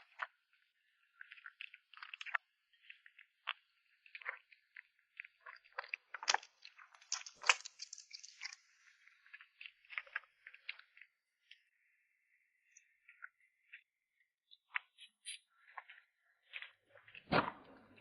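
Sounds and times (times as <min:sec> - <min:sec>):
kitten chewing and crunching food: 0:01.1 - 0:11.7.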